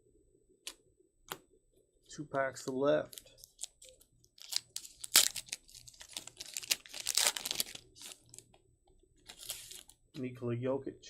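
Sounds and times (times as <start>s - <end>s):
foil wrapper tearing and crinkling: 4.4s - 8.4s, 9.3s - 9.9s.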